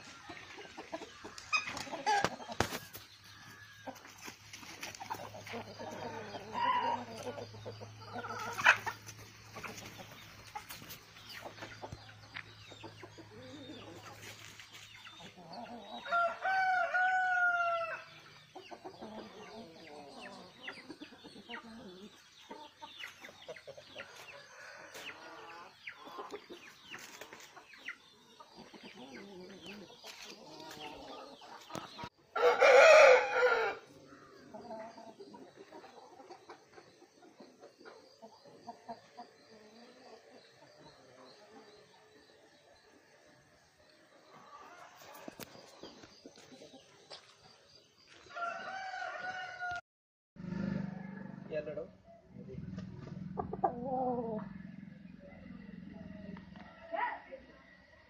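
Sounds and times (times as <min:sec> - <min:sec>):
chickens clucking and calling: 0:00.0 - 0:49.8, 0:52.1 - 0:58.0
rooster crowing: 0:16.0 - 0:18.1, 0:32.3 - 0:33.9, 0:48.3 - 0:49.8.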